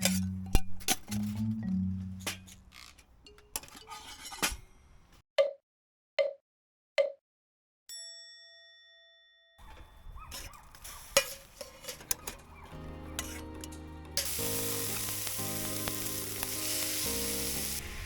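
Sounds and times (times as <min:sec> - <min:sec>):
bell-like ding: 0:07.9 - 0:09.6.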